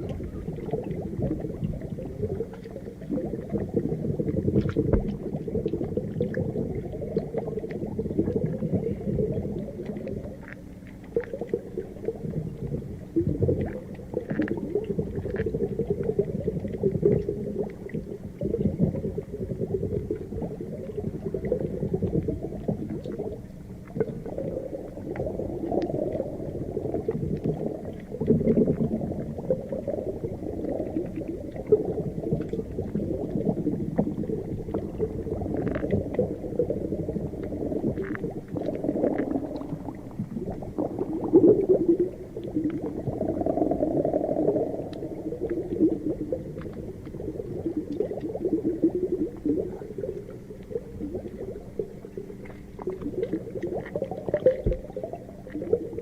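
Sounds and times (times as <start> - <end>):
underwater bubbling rumble: 0.0 - 56.0
faint ticks: 9.6 - 18.3, 32.3 - 36.4, 44.9 - 45.8, 49.2 - 55.8.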